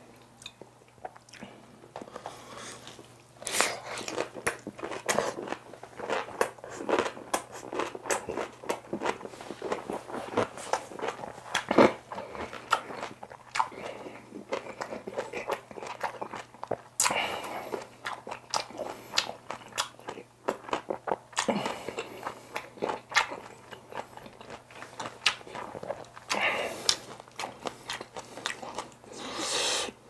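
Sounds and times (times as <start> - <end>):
person chewing crunchy food: 0.4 - 30.0.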